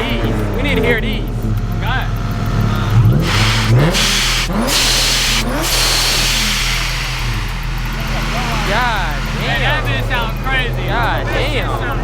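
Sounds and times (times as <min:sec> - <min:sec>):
car engine revving: 0:00.0 - 0:12.0
loud rushing hiss: 0:03.2 - 0:10.7.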